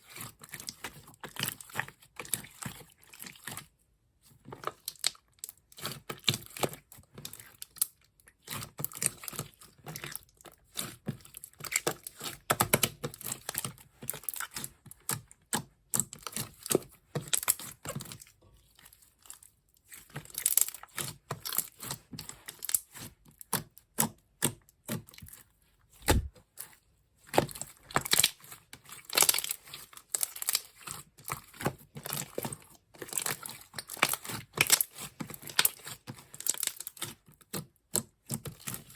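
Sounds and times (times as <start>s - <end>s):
slime squished by hand: 26.0s - 26.6s, 27.3s - 38.8s.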